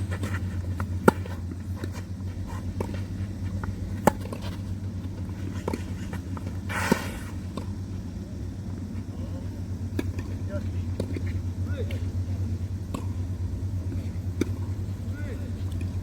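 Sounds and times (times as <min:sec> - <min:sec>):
ball bouncing: 0:00.0 - 0:02.0, 0:02.7 - 0:06.6
tennis racket hitting ball: 0:00.0 - 0:04.7
steady low hum: 0:00.0 - 0:16.0.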